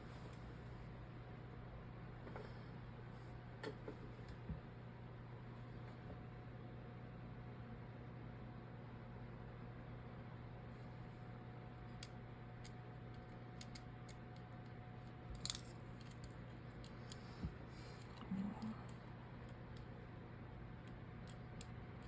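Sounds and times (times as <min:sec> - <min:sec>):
small tools clicking and tapping: 0:11.9 - 0:17.2.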